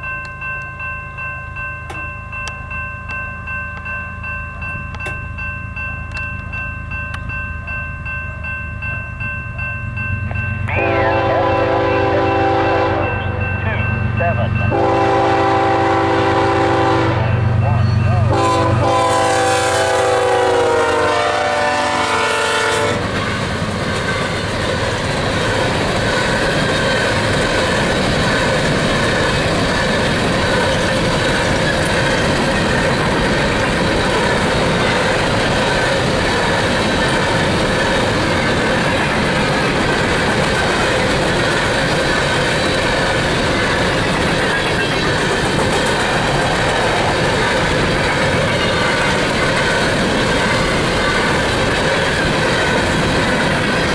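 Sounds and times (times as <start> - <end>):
train cars rumbling and clacking: 0.0 - 53.9
locomotive horn chord: 10.7 - 23.1.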